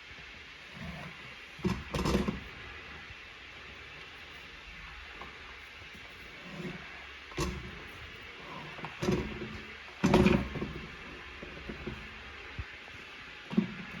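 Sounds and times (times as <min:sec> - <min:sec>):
objects knocking and clattering: 0:08.6 - 0:12.2.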